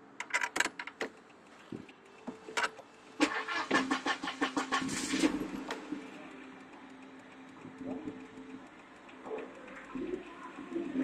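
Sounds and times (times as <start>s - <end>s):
car engine idling: 2.4s - 11.0s
starter cranking engine: 2.6s - 6.2s.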